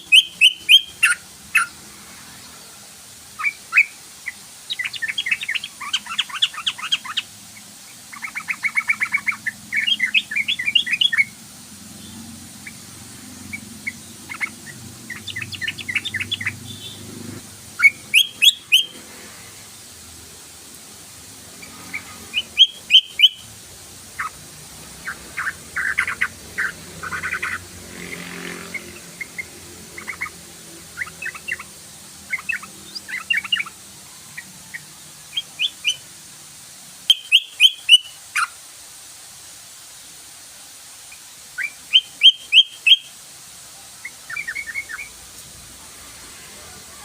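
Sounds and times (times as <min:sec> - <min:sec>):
bulbul chirping: 0:00.0 - 0:01.8, 0:13.5 - 0:17.1, 0:17.8 - 0:19.0, 0:21.6 - 0:23.5, 0:25.0 - 0:27.7, 0:28.7 - 0:33.8, 0:37.1 - 0:38.5, 0:41.6 - 0:43.1.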